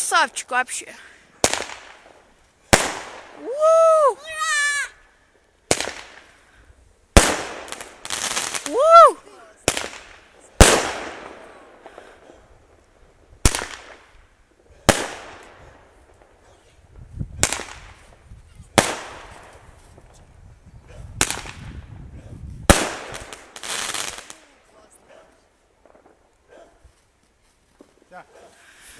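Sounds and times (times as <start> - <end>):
fireworks bangs: 1.4 - 3.8, 5.7 - 6.4, 7.2 - 9.0, 9.6 - 20.3, 21.1 - 24.7.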